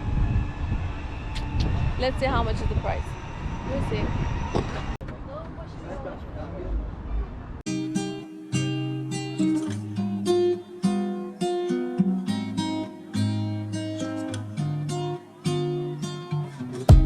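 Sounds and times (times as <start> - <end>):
acoustic guitar plucking: 7.7 - 17.0.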